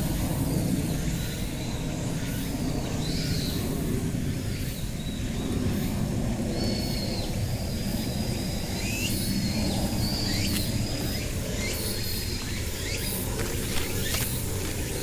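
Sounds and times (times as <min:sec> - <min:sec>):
wild birds chirping and whistling: 0:06.5 - 0:15.0.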